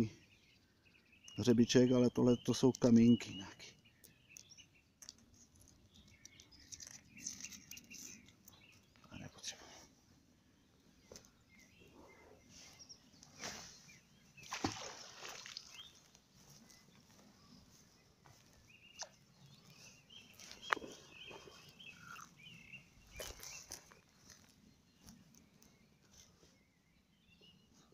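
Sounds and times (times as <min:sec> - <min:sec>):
bird chirps: 0:00.0 - 0:09.6, 0:10.6 - 0:27.9
splashes in river water: 0:14.4 - 0:16.0.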